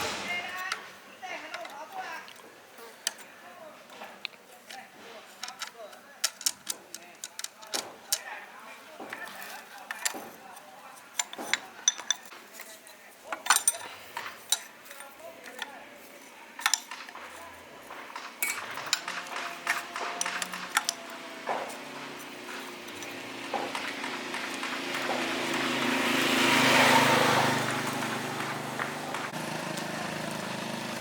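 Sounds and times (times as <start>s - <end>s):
metal tools clinking on metal: 1.4s - 2.0s, 4.1s - 8.4s, 9.0s - 15.8s, 16.5s - 25.7s.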